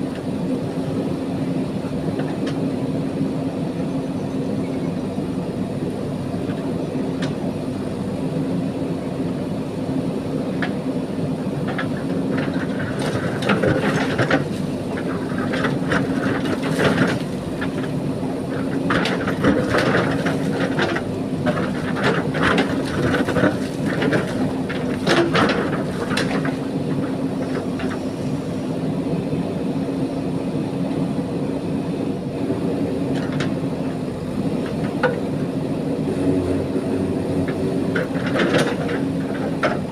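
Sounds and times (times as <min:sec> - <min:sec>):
diesel engine running: 0:00.0 - 0:39.9
bucket clanking and scraping gravel: 0:18.6 - 0:27.8.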